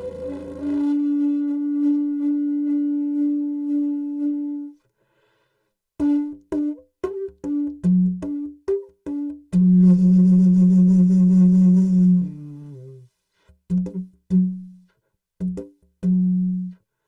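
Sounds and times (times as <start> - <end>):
didgeridoo playing: 0.0 - 3.8.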